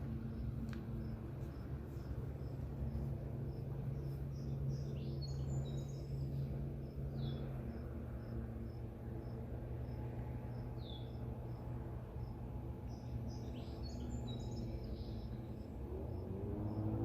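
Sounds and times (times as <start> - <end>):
cricket chirping: 0.0 - 17.0
low hum: 0.0 - 17.0
sweeping bird calls: 3.9 - 6.5, 12.8 - 15.8.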